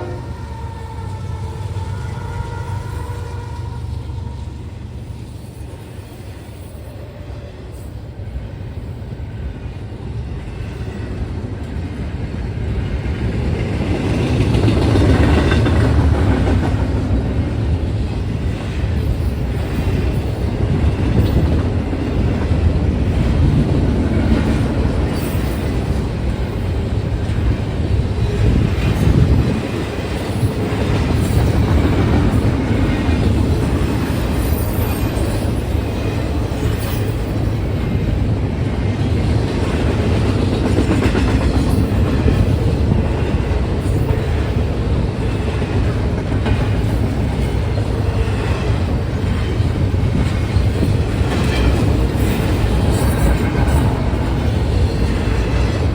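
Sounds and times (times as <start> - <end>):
freight train wheels rumbling: 0.0 - 55.9.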